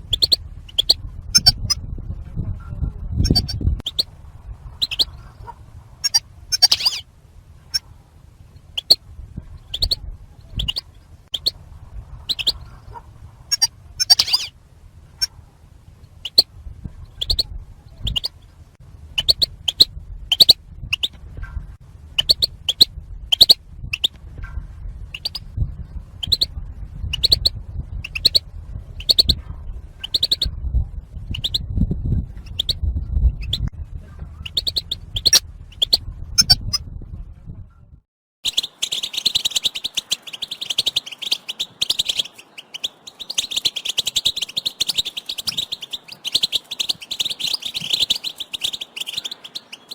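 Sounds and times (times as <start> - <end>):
goldfinch call notes: 0.0 - 1.8, 3.2 - 4.1, 4.7 - 7.9, 8.6 - 9.0, 12.2 - 14.5, 38.4 - 49.9
goldfinches chattering together: 0.0 - 1.8, 3.2 - 7.0, 8.6 - 9.0, 9.6 - 11.6, 12.2 - 14.5, 16.2 - 16.5, 17.1 - 18.4, 19.2 - 21.1, 22.2 - 24.1, 25.1 - 25.5, 26.2 - 28.4, 29.0 - 29.4, 30.0 - 30.5, 31.3 - 31.7, 32.4 - 32.8, 34.4 - 36.8, 38.4 - 49.9
low rumble: 0.0 - 38.1.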